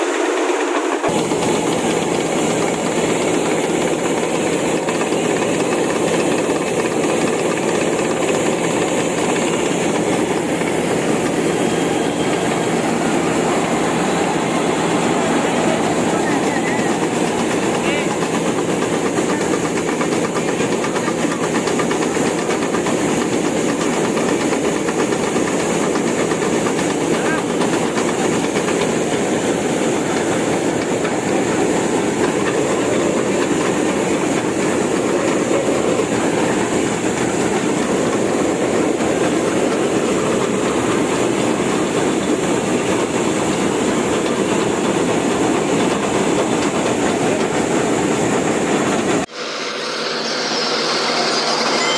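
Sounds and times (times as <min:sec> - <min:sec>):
combine harvester running: 0:00.0 - 0:51.9
faint high whine: 0:49.4 - 0:51.9.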